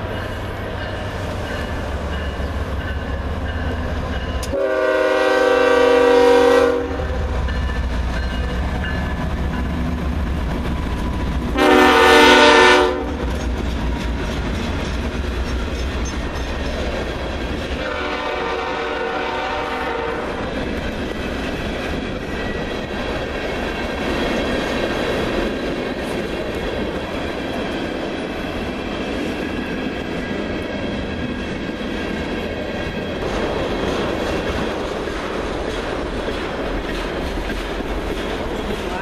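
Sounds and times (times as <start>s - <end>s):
train wheels rumbling on rails: 0.0s - 39.0s
locomotive horn: 4.4s - 7.4s, 11.5s - 13.2s, 17.8s - 20.4s.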